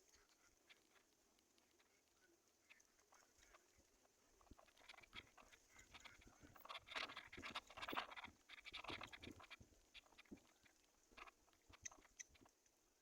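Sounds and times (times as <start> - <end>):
scratching and rustling: 4.4 - 12.6.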